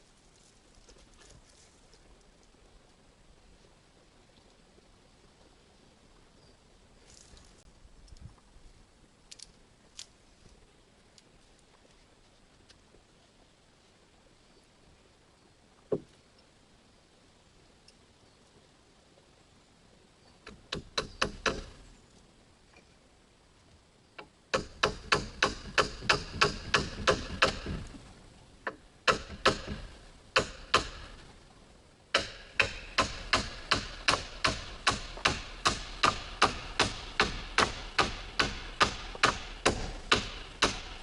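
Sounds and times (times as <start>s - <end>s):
hammering: 20.5s - 21.8s, 24.5s - 27.9s, 28.7s - 31.2s, 32.1s - 41.0s.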